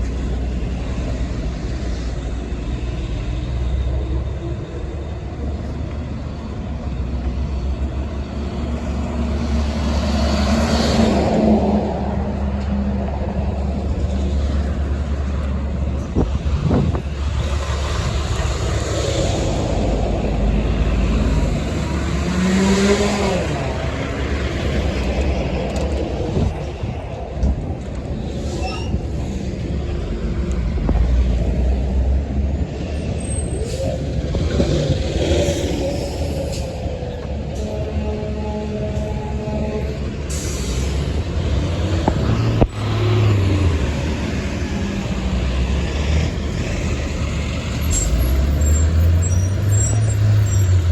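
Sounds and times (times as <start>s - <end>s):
trucks passing: 0.0s - 50.9s
vehicle engine and road rumble: 0.0s - 50.9s
wind noise: 10.4s - 22.3s, 23.0s - 37.5s
air brakes hissing: 35.4s - 37.7s, 40.2s - 41.2s.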